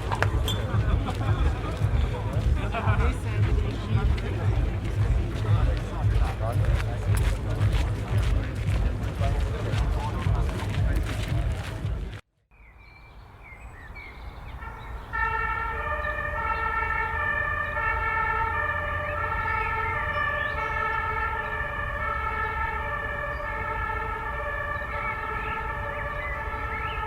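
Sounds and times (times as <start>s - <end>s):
city traffic rumble: 0.0s - 12.2s, 13.2s - 27.0s
two-tone siren: 14.6s - 27.0s.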